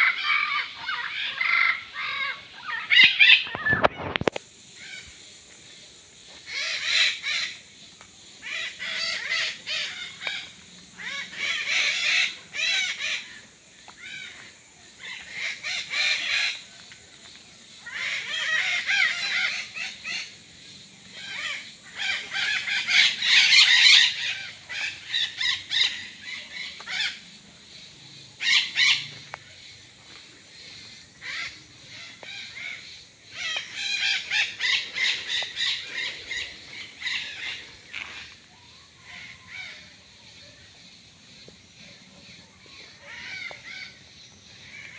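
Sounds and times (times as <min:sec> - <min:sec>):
parrots calling: 0:00.0 - 0:05.1, 0:08.4 - 0:13.4, 0:17.8 - 0:20.3, 0:21.2 - 0:27.2, 0:28.4 - 0:29.1, 0:31.2 - 0:38.3, 0:42.7 - 0:44.0.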